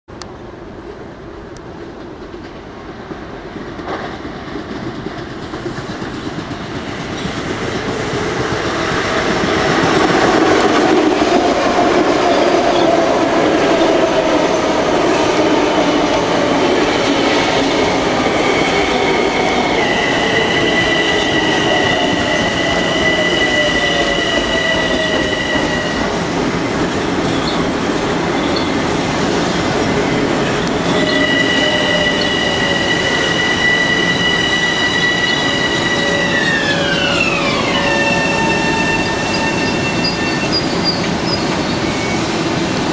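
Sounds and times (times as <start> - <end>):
electric train running: 3.8 - 42.8
wheel and brake squeal: 19.8 - 26.1, 30.8 - 42.4.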